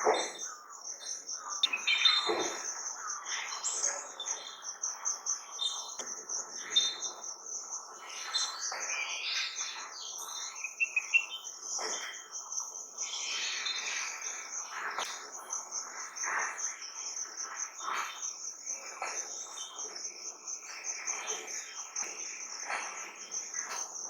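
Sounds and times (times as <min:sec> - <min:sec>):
birds chirping and singing: 0:00.0 - 0:15.0
high-pitched insect trill: 0:00.0 - 0:24.0.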